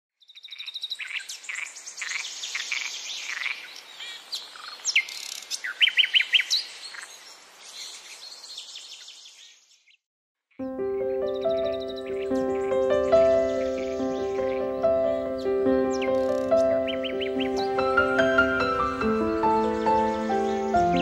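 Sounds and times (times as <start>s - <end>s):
birds chirping and singing: 0.2s - 21.0s.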